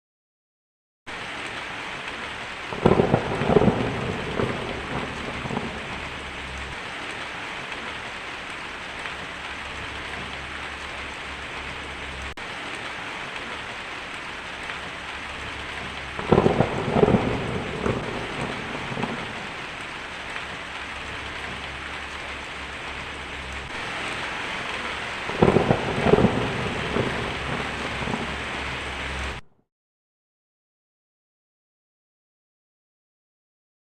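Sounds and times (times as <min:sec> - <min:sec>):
thunder cracking and rumbling: 0:01.1 - 0:08.1, 0:08.8 - 0:29.4
heavy rain on a tin roof: 0:01.1 - 0:29.4.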